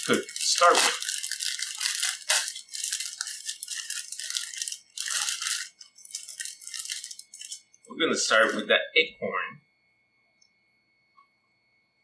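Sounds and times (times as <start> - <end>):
packaging crinkling: 0.0 - 7.8.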